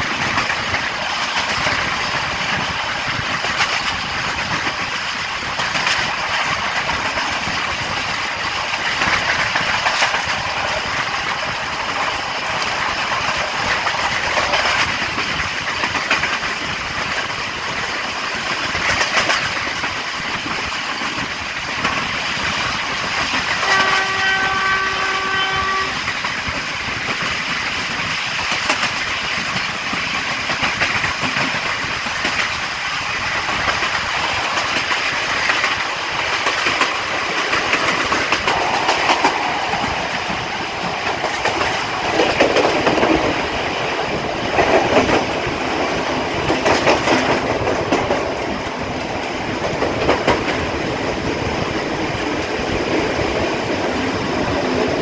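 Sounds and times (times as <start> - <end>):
wheel on rail rumble: 0.0 - 55.0
wheels clicking over rail joints: 0.0 - 55.0
wind: 0.0 - 55.0
locomotive horn: 23.6 - 26.0.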